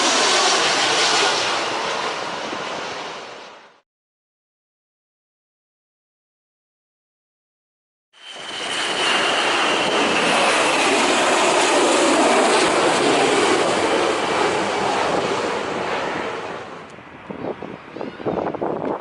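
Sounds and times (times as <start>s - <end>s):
jet airliner engine roar: 0.0s - 3.8s, 8.2s - 19.0s
jet engine whine falling in pitch: 0.0s - 3.8s, 8.2s - 19.0s.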